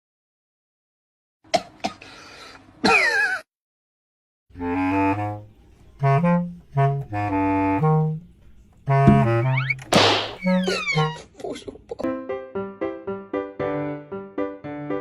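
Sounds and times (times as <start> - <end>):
saxophone-like wind instrument melody: 4.6 - 11.2.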